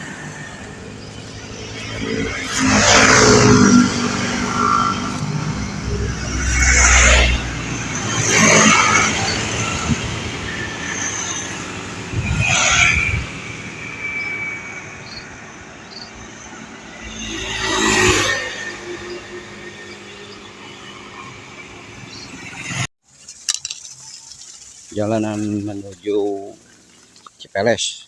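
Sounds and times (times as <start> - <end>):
steady low traffic rumble: 0.0 - 17.2
vehicles passing close by: 0.0 - 22.9.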